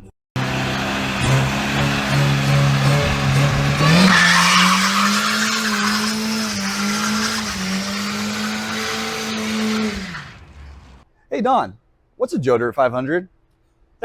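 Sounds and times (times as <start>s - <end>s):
car engine revving: 0.4s - 11.0s
tires squealing: 0.4s - 11.0s.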